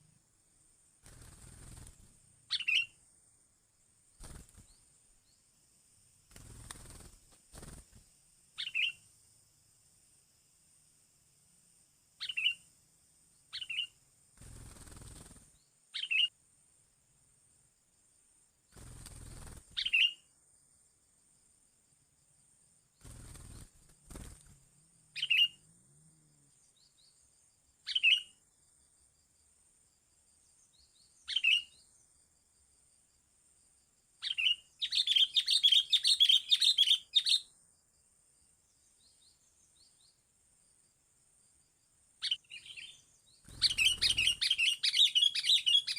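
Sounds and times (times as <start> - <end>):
small bird chirping: 1.0 - 3.2, 4.1 - 9.3, 12.1 - 16.4, 18.7 - 20.4, 22.9 - 25.7, 26.5 - 29.0, 30.3 - 32.3, 34.2 - 37.6, 38.4 - 40.3, 42.2 - 45.9.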